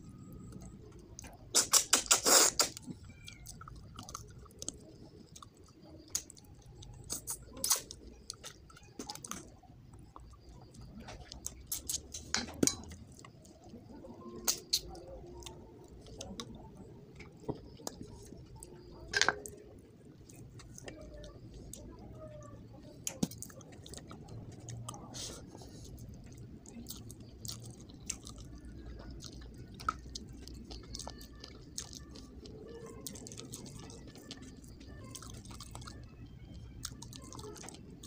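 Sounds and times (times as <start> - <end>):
person chewing: 0.2 - 22.0, 23.0 - 36.0, 36.8 - 38.0
sharp mouth clicks: 1.3 - 2.9, 7.0 - 8.0
wet mouth smacks: 1.5 - 2.8, 7.1 - 7.9.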